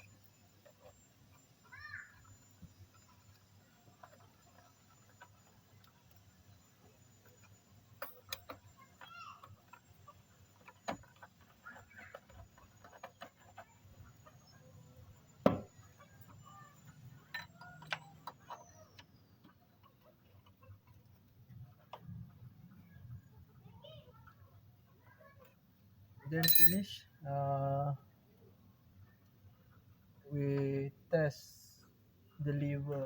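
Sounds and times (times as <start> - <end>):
tools and metal parts clicking: 17.2 - 18.6, 26.4 - 27.0.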